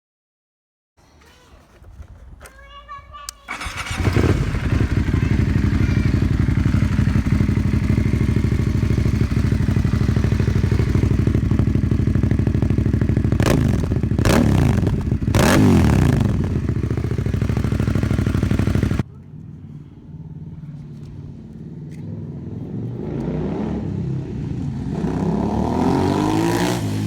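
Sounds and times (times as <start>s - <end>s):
motorcycle throttle blips: 3.2s - 19.8s
motorcycle engine idling: 3.5s - 22.9s.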